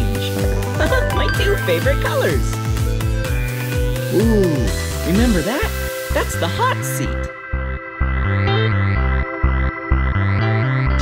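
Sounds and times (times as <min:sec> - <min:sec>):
synthesizer music with pulsing bass: 0:00.7 - 0:02.7.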